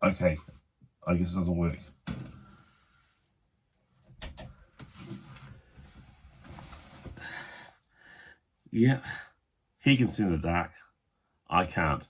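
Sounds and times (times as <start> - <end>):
rustling and shuffling: 3.9 - 7.5.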